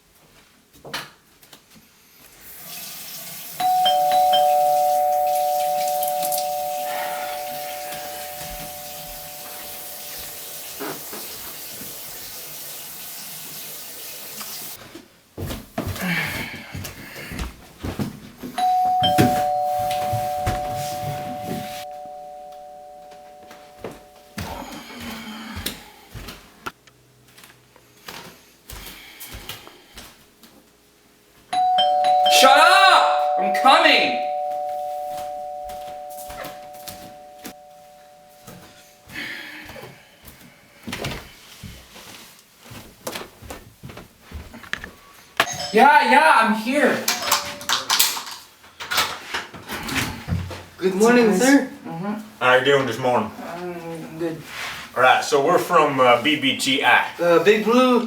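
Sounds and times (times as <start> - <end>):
two-note chime doorbell: 3.6 - 10.8, 18.6 - 25.0, 31.5 - 39.2, 45.4 - 46.2.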